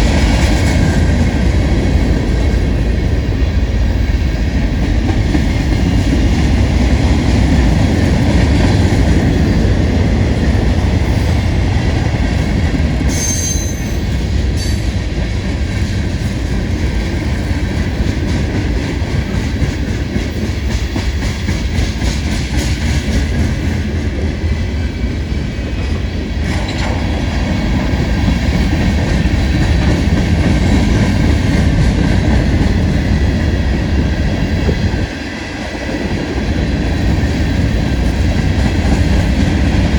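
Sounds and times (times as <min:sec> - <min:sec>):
freight train rumbling past: 0:00.0 - 0:39.9
wheel squeal: 0:13.1 - 0:14.1.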